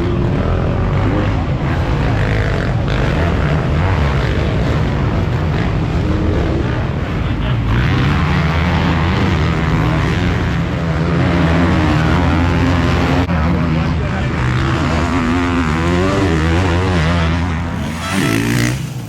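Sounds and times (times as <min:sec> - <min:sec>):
motocross bikes revving: 0:14.4 - 0:19.0.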